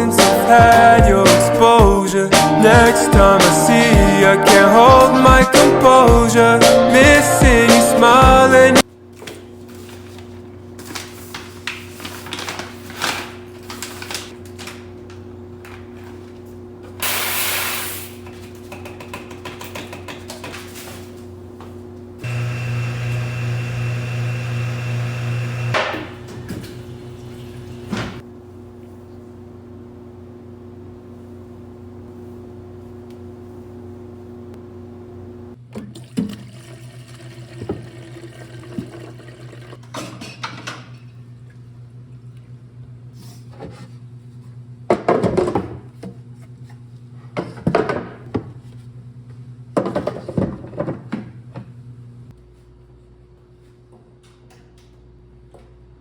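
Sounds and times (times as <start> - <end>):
appliance hum: 0.0 - 56.0
kitchen clatter and clicks: 18.6 - 20.8
small motor-driven appliance running: 22.2 - 25.8.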